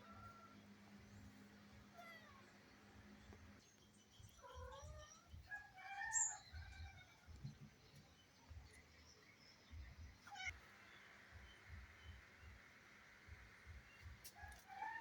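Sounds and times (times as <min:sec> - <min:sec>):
cat meowing faintly: 0:10.2 - 0:10.6.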